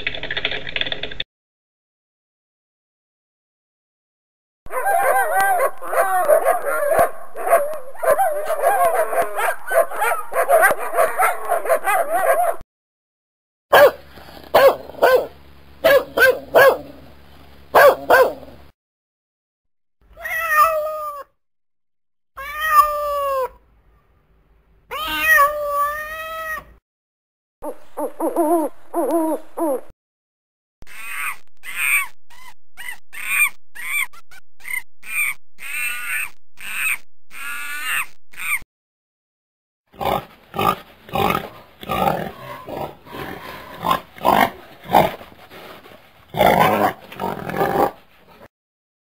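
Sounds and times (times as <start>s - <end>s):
dogs barking: 4.7s - 12.6s, 13.7s - 17.0s, 17.7s - 18.6s, 40.0s - 45.2s
single dog barking: 4.7s - 12.6s, 13.7s - 14.0s, 14.6s - 16.9s, 17.8s - 18.5s
cat meowing: 20.2s - 21.2s, 22.4s - 23.6s, 24.9s - 26.8s
owl hooting: 27.6s - 29.9s, 30.9s - 38.6s.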